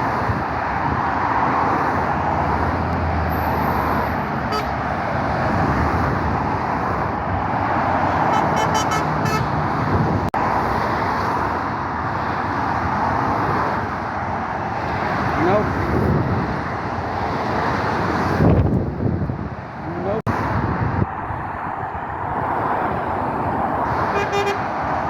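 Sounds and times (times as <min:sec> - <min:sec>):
road traffic: 0:00.0 - 0:25.0
short horn toots: 0:08.3 - 0:09.5, 0:24.1 - 0:24.6.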